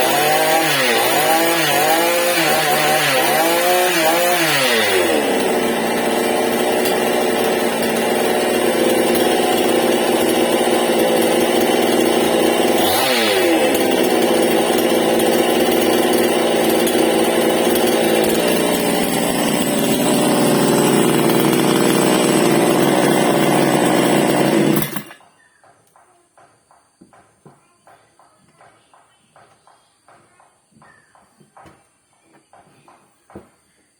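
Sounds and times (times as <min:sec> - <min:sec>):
chainsaw at high revs: 0:00.0 - 0:25.2.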